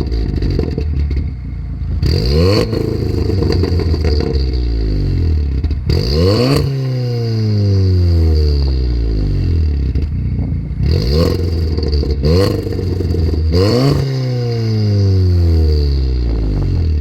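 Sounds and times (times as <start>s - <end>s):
exhaust pops: 0.0s - 6.7s, 8.6s - 14.6s
car exhaust revving: 0.0s - 17.0s.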